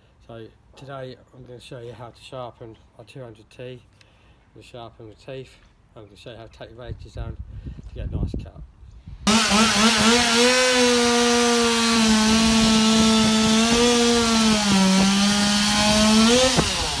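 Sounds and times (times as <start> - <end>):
chainsaw cutting wood: 9.3 - 17.0.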